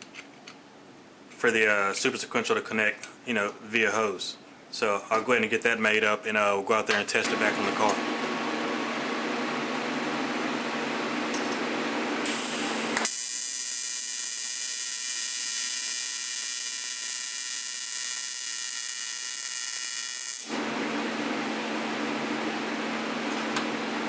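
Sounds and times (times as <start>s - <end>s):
welding arc buzzing: 7.3s - 22.6s.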